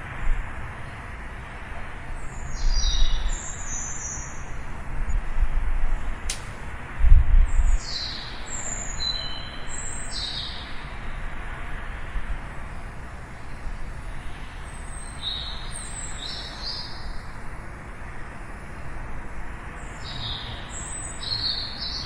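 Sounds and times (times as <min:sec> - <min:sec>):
small birds chirping: 0:02.2 - 0:05.2, 0:07.5 - 0:10.9, 0:14.0 - 0:17.4, 0:19.8 - 0:22.0.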